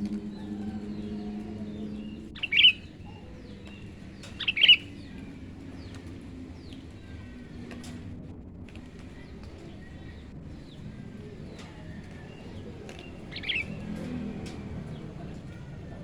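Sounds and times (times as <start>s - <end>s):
bird calling in bursts: 0.0s - 5.1s, 13.3s - 13.8s
faint bird chirps: 0.0s - 5.3s.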